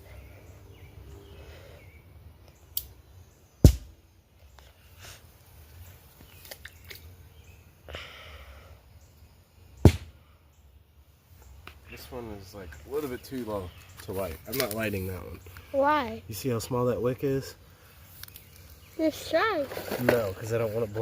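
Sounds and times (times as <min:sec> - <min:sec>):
small pop: 0:03.6 - 0:03.9.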